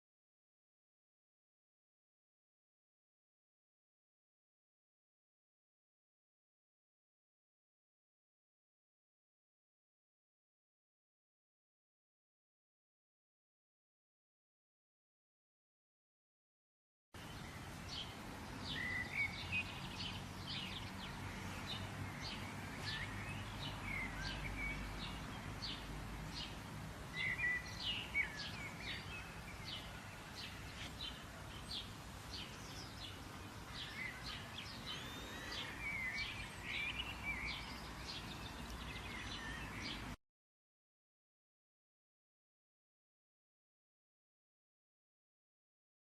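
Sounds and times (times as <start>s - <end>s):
outdoor background noise: 17.2s - 40.2s
songbirds chirping and trilling: 17.2s - 40.2s.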